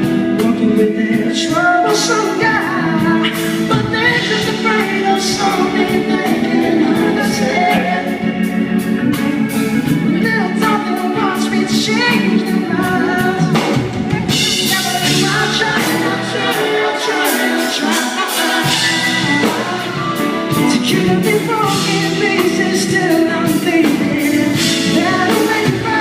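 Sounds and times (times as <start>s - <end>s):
keyboards: 0.0s - 26.0s
drums with cymbal strokes: 13.4s - 26.0s.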